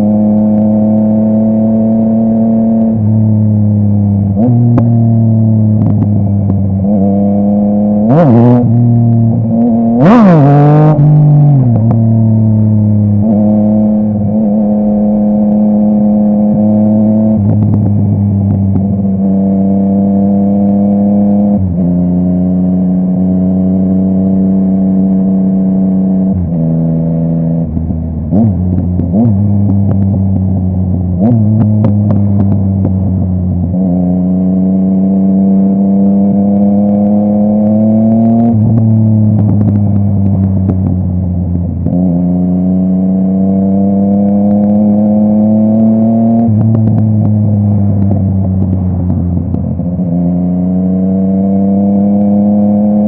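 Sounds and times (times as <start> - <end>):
motorcycle engine revving through gears: 0.0 - 53.0
exhaust crackling pops: 17.4 - 19.0, 27.7 - 33.7, 38.5 - 42.1, 45.8 - 50.0.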